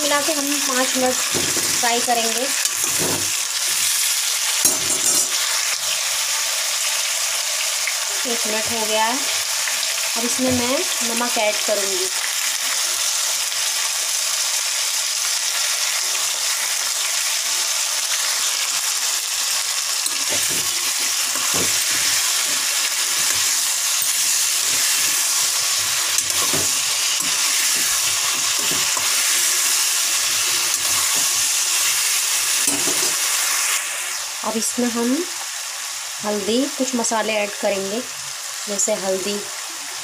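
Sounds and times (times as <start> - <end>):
vegetables sizzling in hot oil: 0.0 - 40.0
metal spoon scraping a pan: 2.6 - 5.5, 20.0 - 33.4.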